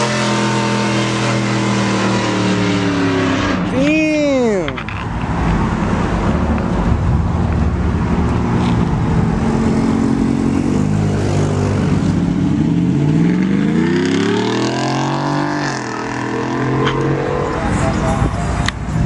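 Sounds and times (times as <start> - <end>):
car engine revving: 0.0 - 3.8, 5.4 - 18.7.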